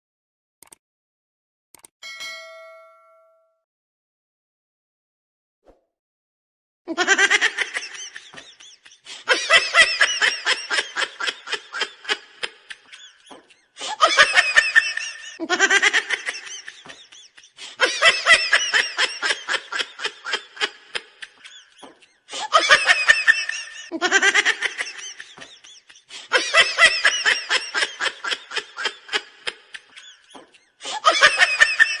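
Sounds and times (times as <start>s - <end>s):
burst of rapid laughter: 6.9s - 32.0s.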